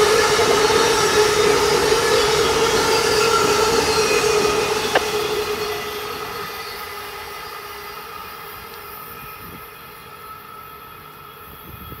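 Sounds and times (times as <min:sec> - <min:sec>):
train wheels on rails: 0:00.0 - 0:12.0.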